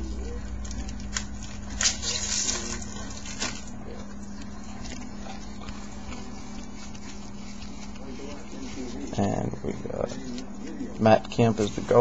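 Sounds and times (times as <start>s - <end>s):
faint handling noises: 0.1s - 12.0s
foil wrapper tearing and crinkling: 0.5s - 9.2s.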